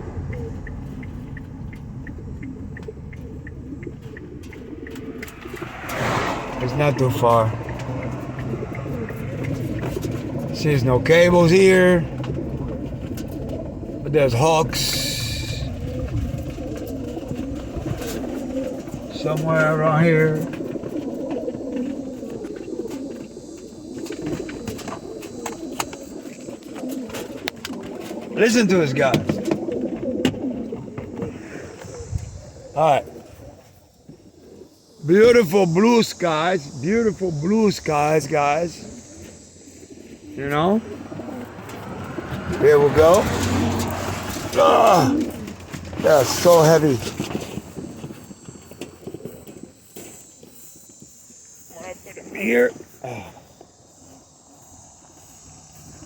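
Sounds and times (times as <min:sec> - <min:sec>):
light even ticking: 0:00.0 - 0:11.2
car engine and road rumble: 0:00.0 - 0:56.0
pigeons cooing: 0:00.0 - 0:56.0.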